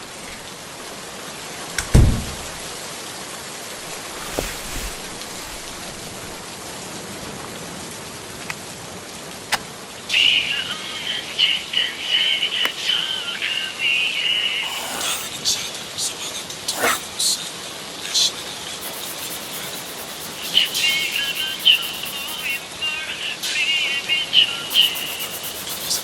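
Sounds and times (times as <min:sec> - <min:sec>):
steady rain falling: 0:00.0 - 0:13.6.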